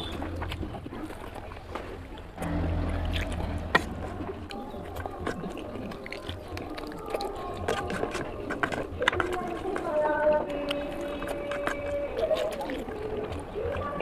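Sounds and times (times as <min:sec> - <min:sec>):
low steady hum: 0:00.0 - 0:08.0
mouth clicks and smacks: 0:00.0 - 0:14.0
person chewing and slurping: 0:00.0 - 0:14.0.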